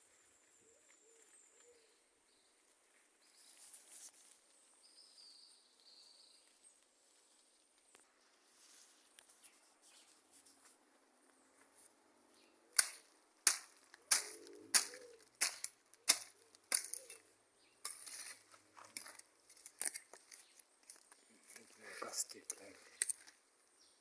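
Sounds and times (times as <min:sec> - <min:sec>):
soft scraping rustle: 0:02.6 - 0:04.6, 0:06.4 - 0:12.0.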